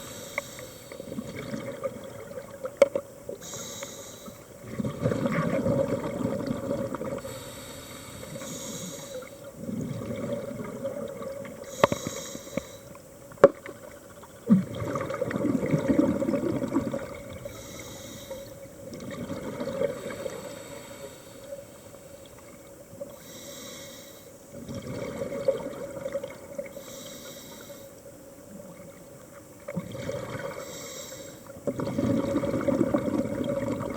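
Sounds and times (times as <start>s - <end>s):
diver breathing through regulator: 0.0s - 1.2s, 3.4s - 4.5s, 7.2s - 9.4s, 11.6s - 12.9s, 17.4s - 18.6s, 20.1s - 22.1s, 23.1s - 24.4s, 26.7s - 28.0s, 30.5s - 31.5s
exhaled bubbles rushing: 1.1s - 2.8s, 4.6s - 7.2s, 9.5s - 11.6s, 14.4s - 17.5s, 18.9s - 20.4s, 24.6s - 26.7s, 29.7s - 30.6s, 31.7s - 33.9s.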